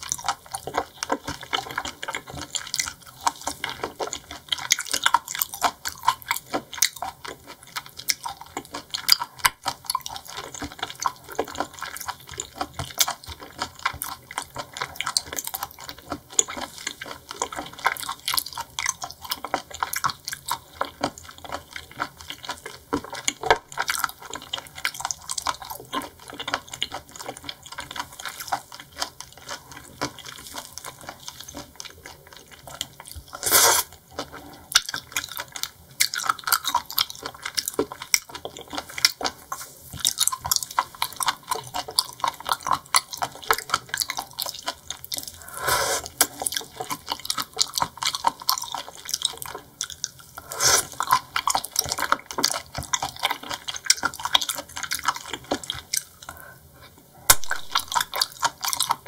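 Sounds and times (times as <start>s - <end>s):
wet chewing with mouth clicks: 0.0s - 59.0s.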